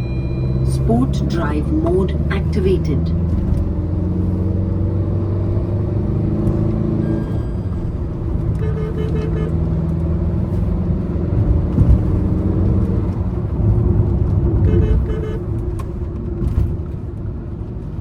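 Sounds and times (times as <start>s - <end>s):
short beeps: 0.0s - 1.7s, 7.0s - 9.5s
diesel car engine pulling away: 0.0s - 18.0s.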